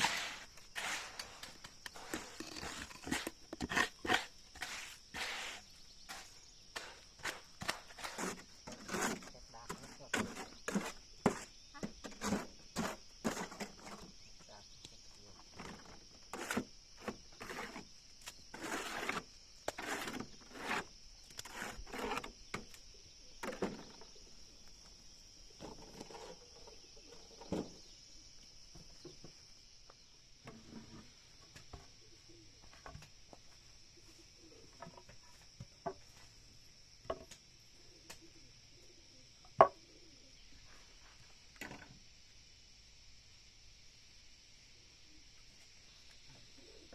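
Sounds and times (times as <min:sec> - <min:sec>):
rasping strokes on wood: 0:00.0 - 0:11.5, 0:18.5 - 0:22.4.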